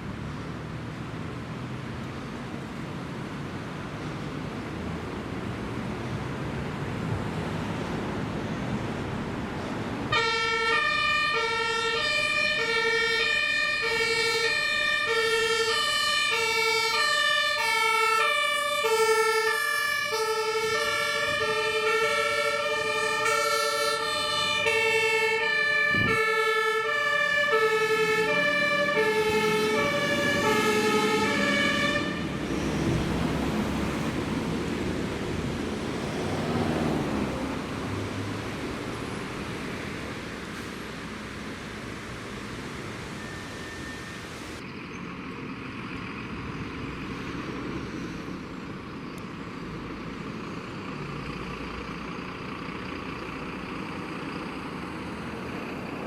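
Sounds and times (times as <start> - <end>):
engine and road noise: 0.0 - 56.0
fire engine two-tone siren: 10.1 - 34.7, 38.6 - 44.7.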